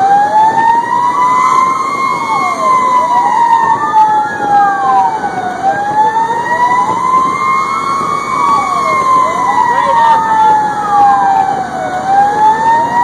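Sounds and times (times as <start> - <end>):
fast sweeping siren: 0.0 - 13.0
slow wailing siren: 0.0 - 13.0.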